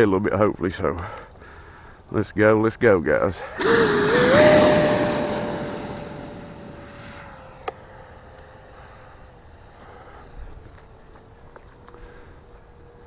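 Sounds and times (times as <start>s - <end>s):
ducted fan jet whine: 3.6s - 7.5s.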